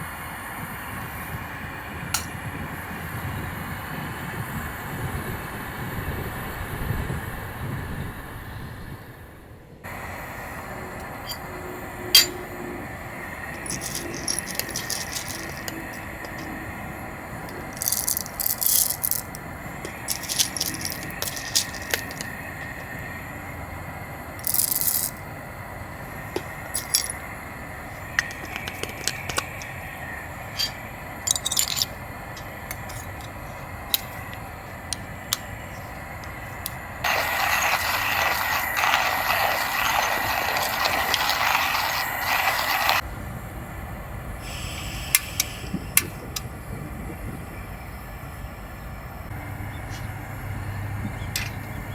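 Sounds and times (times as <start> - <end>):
steady hiss: 9.9 - 43.1, 44.2 - 48.4
small hard objects clinking: 13.4 - 16.6, 17.4 - 23.0, 24.4 - 25.2, 26.3 - 29.8, 30.4 - 43.0.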